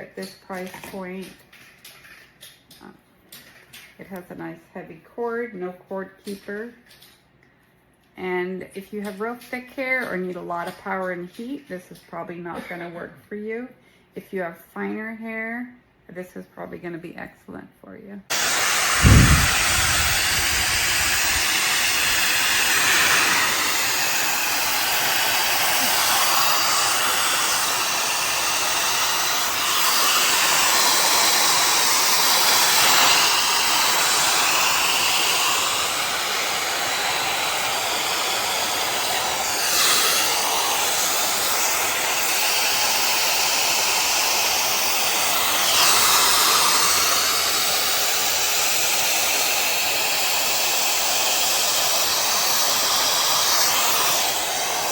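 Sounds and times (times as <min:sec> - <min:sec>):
hot-air styler blowing: 0:18.3 - 0:54.9.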